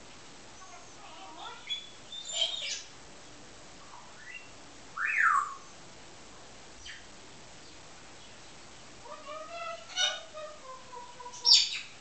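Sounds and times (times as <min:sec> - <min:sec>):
pet bird chirping and whistling: 0:01.4 - 0:02.9, 0:04.1 - 0:05.7, 0:11.3 - 0:11.9.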